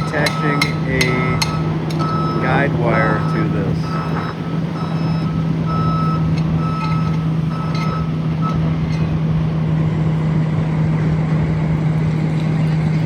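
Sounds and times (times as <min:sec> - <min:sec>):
reversing alarm beeping: 0:00.0 - 0:10.3
construction vehicle engine running: 0:00.0 - 0:13.0.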